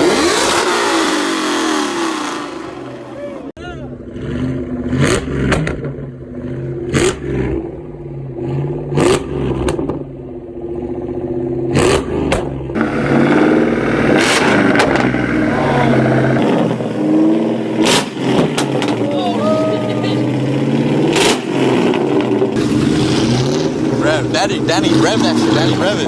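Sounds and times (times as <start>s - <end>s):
car engine idling and revving: 0.0s - 26.0s
exhaust pops: 14.0s - 15.4s.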